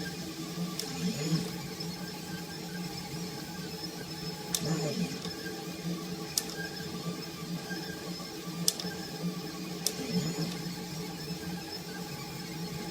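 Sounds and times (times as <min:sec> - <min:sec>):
stepper motors humming: 0:00.7 - 0:01.7, 0:04.4 - 0:05.4, 0:09.8 - 0:10.9.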